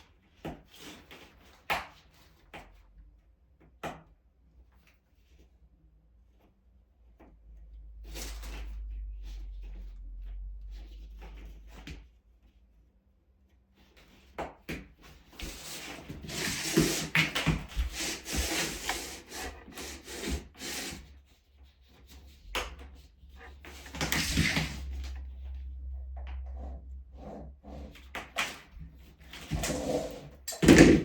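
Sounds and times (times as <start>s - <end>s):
rubbing and scraping with clicks: 13.7s - 31.0s.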